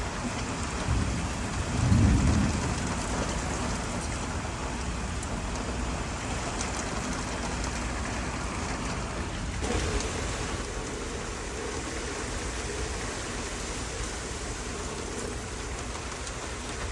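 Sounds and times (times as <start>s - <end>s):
steady rain: 0.0s - 16.9s
thunder rumble: 0.6s - 4.9s.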